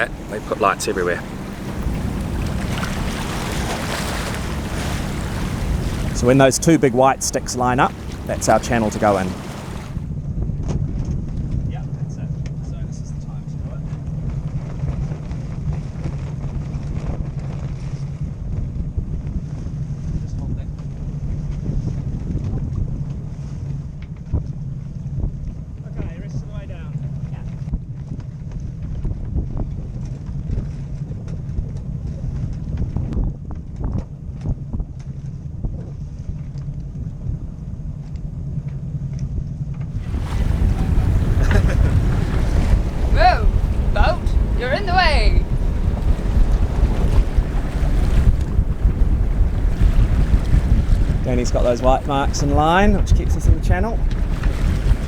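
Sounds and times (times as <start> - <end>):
steady low rumble: 0.0 - 10.1, 39.9 - 55.0
wind buffeting microphone: 0.0 - 10.1, 39.9 - 55.0
rush of wind and water: 0.0 - 23.6, 39.9 - 55.0.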